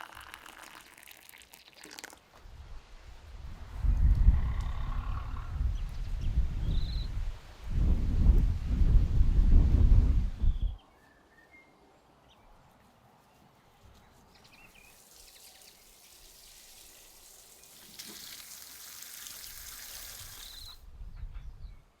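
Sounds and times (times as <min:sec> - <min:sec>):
water pouring: 0:00.0 - 0:02.2, 0:14.7 - 0:20.8.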